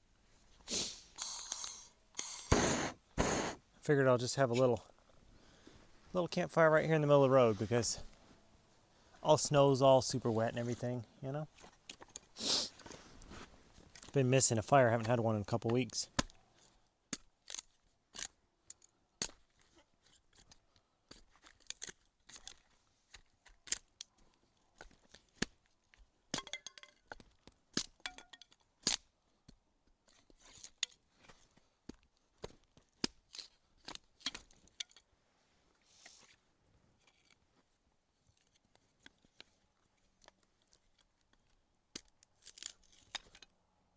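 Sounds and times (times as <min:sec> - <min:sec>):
dry sticks snapping: 0:42.0 - 0:43.4
bark tearing: 0:42.4 - 0:43.4.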